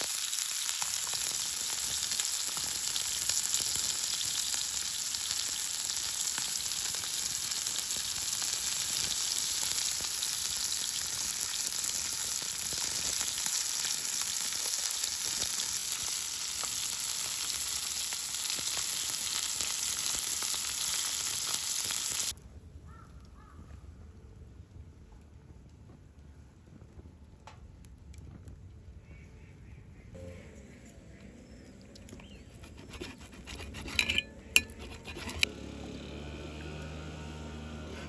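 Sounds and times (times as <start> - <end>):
food sizzling in a hot pan: 0.0 - 22.4.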